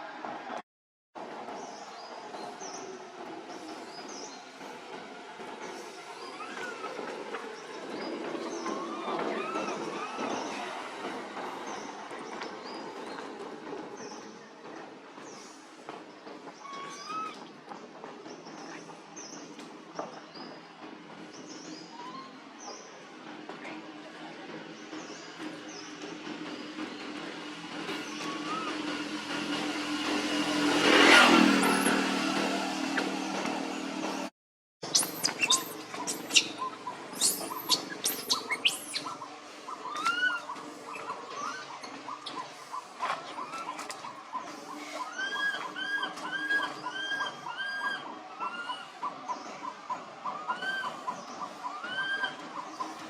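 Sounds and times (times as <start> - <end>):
lower short chirps: 34.8 - 36.6, 37.2 - 39.2
high-pitched squeaks and chirps: 34.8 - 42.4
baby monkey cooing: 34.9 - 42.4.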